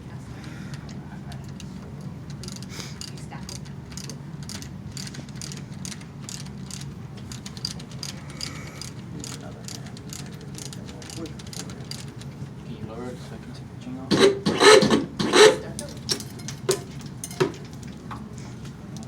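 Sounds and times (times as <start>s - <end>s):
steady low hum: 0.0s - 19.0s
ratchet wrench clicking: 2.3s - 12.2s, 14.1s - 17.7s.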